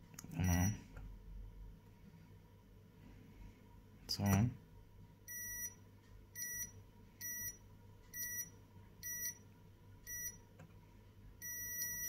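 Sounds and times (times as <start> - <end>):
multimeter buzzer beeping: 5.3 - 5.8, 6.4 - 7.6, 8.2 - 9.4, 10.1 - 10.4, 11.4 - 12.0.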